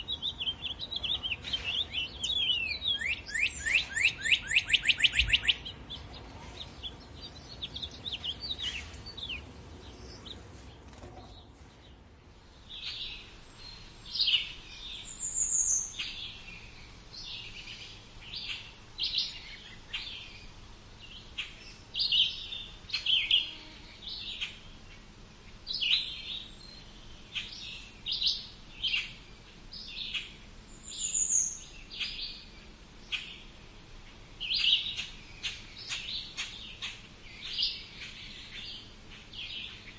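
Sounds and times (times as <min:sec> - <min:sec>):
songbirds chirping: 0:00.0 - 0:39.9
high falling bird whistle: 0:02.9 - 0:05.6.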